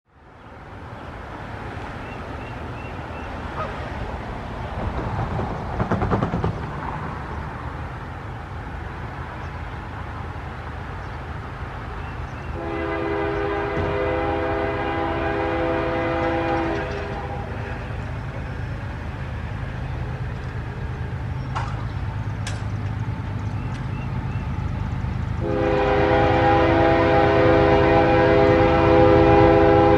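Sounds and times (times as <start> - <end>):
diesel locomotives rumbling: 0.1 - 29.9
multi-tone train horn blast: 12.4 - 18.0, 25.4 - 29.9.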